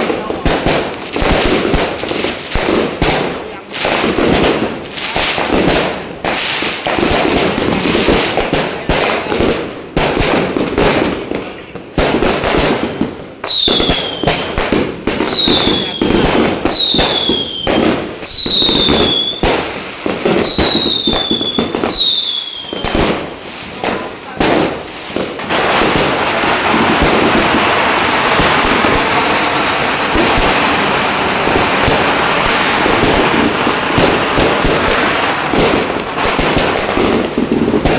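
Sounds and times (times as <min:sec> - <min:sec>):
fireworks banging: 0:00.0 - 0:37.9
fireworks crackling: 0:00.0 - 0:37.9
whistling firework: 0:13.4 - 0:24.0, 0:25.6 - 0:37.9.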